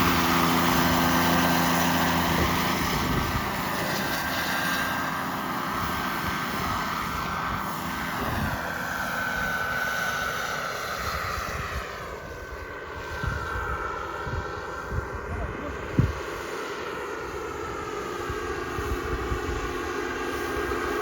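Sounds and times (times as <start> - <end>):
model jet turbine whine: 0.0 - 21.0.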